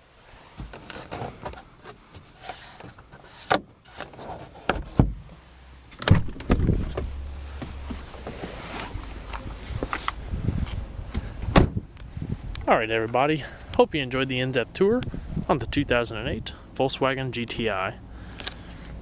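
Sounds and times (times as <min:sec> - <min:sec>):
low rumble: 0:05.5 - 0:13.8.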